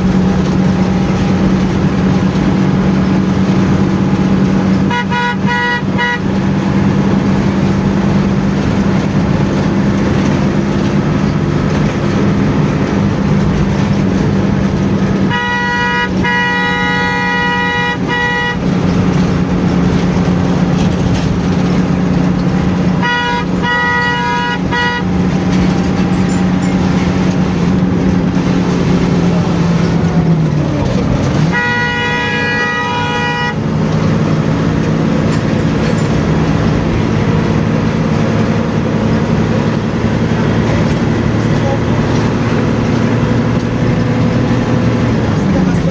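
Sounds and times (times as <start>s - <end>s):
bus engine running: 0.0s - 45.9s
road noise: 0.0s - 45.9s
vehicle horn blasts: 4.7s - 6.7s, 15.1s - 19.2s, 22.8s - 27.0s, 31.2s - 33.9s.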